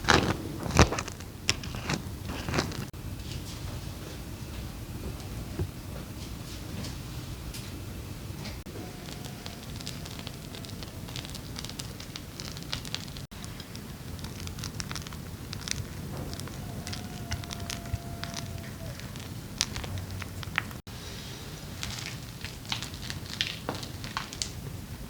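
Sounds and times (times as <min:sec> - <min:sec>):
wood fire crackling and popping: 0:08.7 - 0:20.9, 0:21.7 - 0:25.0.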